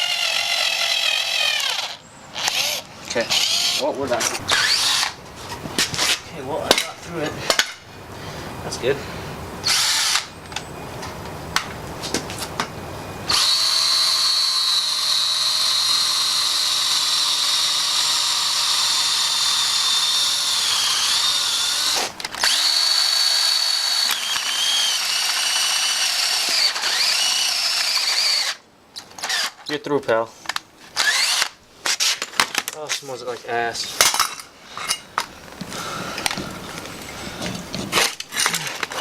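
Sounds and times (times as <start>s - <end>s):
power drill whining: 0.0s - 5.2s, 9.6s - 10.4s, 13.3s - 28.6s, 29.2s - 29.6s, 31.0s - 31.6s.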